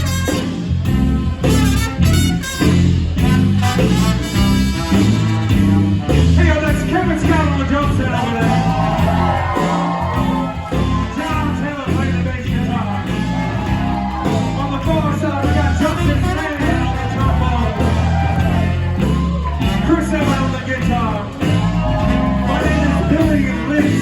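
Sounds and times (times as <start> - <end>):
live rock band playing: 0.0 - 24.0
person singing: 7.3 - 24.0.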